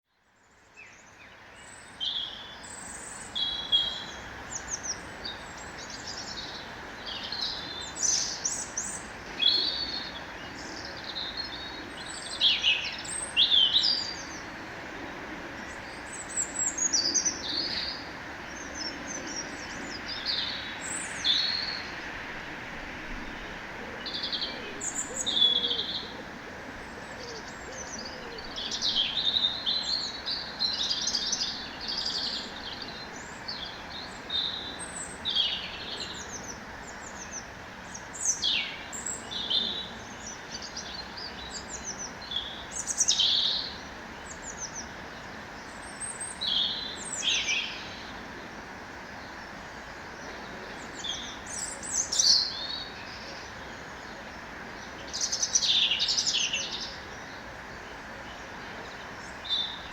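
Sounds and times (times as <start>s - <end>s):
steady background hiss: 0.2s - 59.9s
birds chirping and singing: 23.2s - 45.0s, 49.1s - 59.9s.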